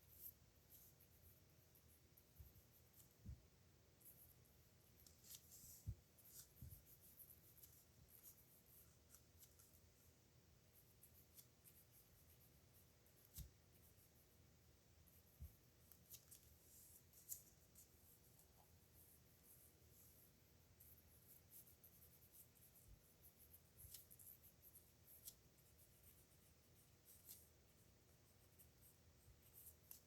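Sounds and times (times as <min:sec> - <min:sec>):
pen nib scratching paper: 0:04.0 - 0:09.9, 0:10.8 - 0:14.4, 0:15.0 - 0:30.0.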